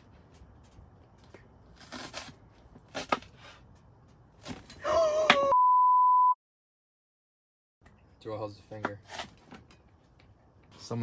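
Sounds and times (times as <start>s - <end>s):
faint handling and cutting noises: 0.0s - 4.7s
censor bleep: 5.5s - 6.4s.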